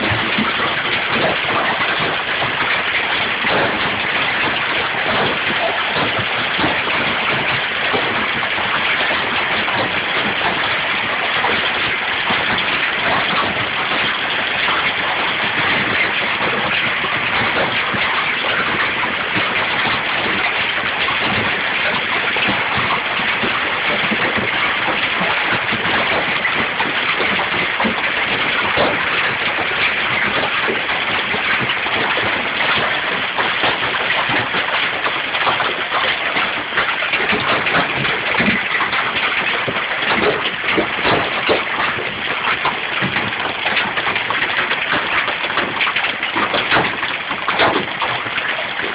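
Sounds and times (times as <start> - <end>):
hail clattering: 0.0 - 48.9.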